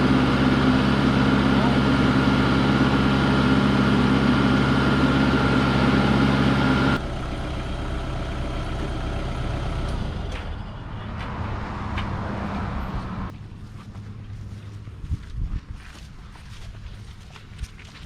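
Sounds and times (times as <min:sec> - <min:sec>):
engine idling: 0:00.0 - 0:11.1.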